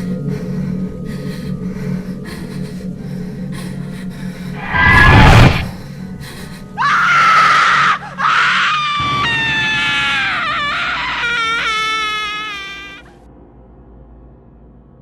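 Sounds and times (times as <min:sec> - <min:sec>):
low steady drone: 0:00.0 - 0:06.8.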